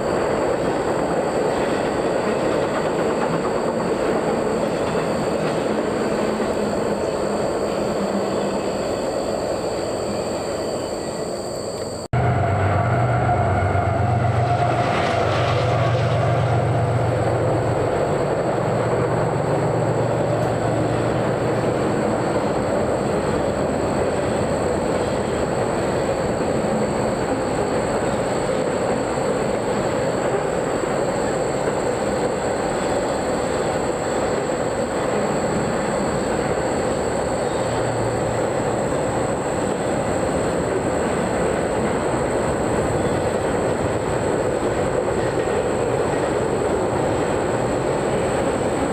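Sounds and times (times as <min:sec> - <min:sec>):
train wheels rumbling on rail: 0:00.0 - 0:48.9
low drone: 0:12.0 - 0:22.9.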